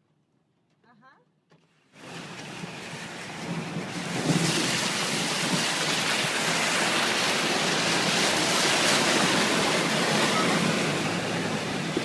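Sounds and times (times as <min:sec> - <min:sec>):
heavy rain pouring: 0:02.0 - 0:12.0.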